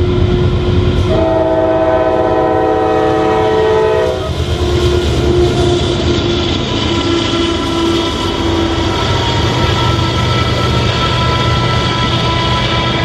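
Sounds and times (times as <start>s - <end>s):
rumble of passing train: 0.0s - 13.0s
locomotive air horn blast: 1.0s - 6.1s.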